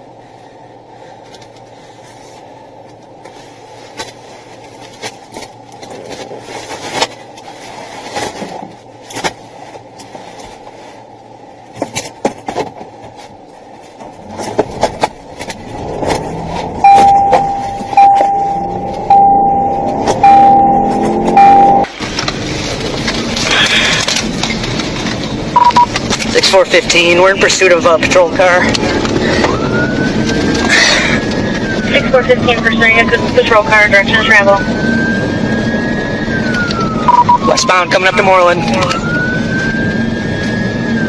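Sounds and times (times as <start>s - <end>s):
car engine speeding up: 14.1s - 37.7s, 38.3s - 41.0s
loud repeating beep tone: 16.8s - 21.9s, 25.6s - 25.9s
clicks and rattles in car: 21.8s - 27.2s.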